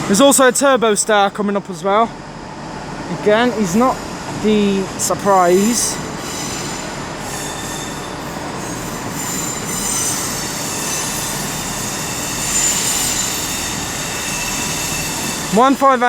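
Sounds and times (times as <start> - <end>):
train rumbling: 0.0 - 16.0
train wheels squealing: 3.2 - 16.0.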